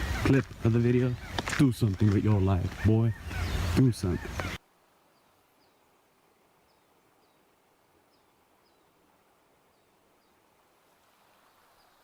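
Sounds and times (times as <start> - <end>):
small bird chirping: 1.1 - 4.6.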